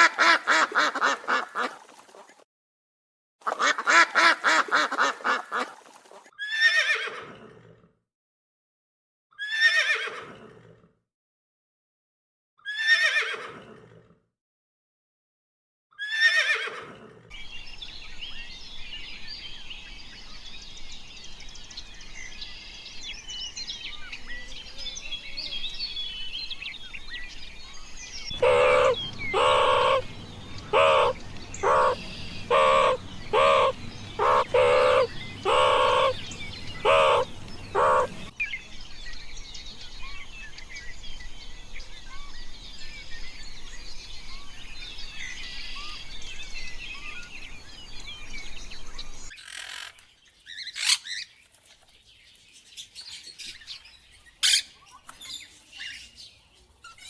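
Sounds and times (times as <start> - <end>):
birds chirping and singing: 17.4 - 49.3
short loud animal calls: 28.3 - 38.3.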